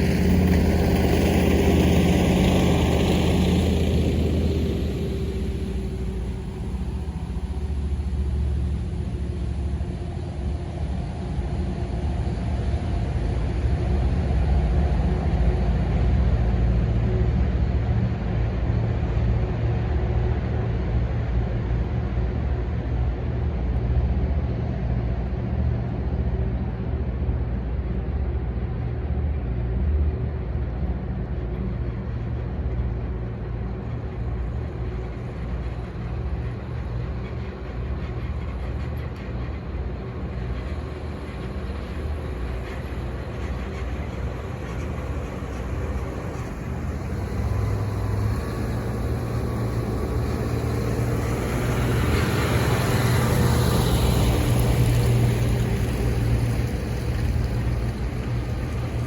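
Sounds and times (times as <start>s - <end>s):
tank engine droning: 0.0s - 59.0s.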